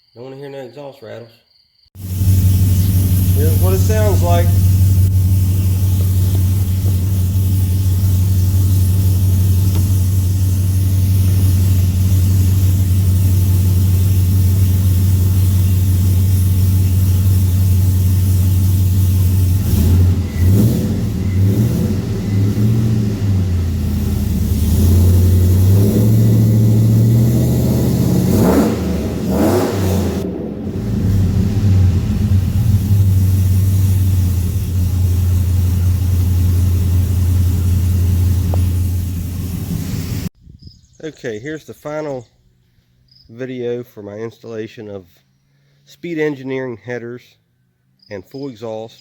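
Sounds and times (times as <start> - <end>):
truck engine idling and revving: 2.0 - 40.3.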